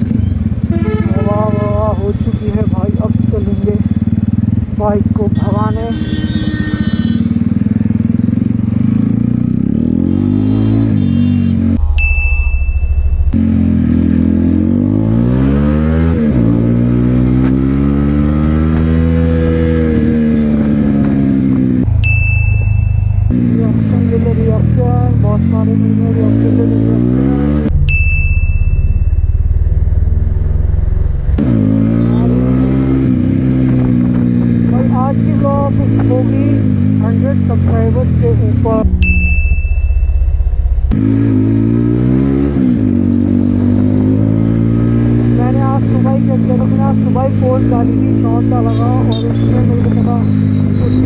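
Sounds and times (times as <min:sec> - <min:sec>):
motorcycle engine revving: 0:00.0 - 0:11.8, 0:13.2 - 0:22.2, 0:22.9 - 0:51.0
deep heavy engine: 0:27.7 - 0:33.0.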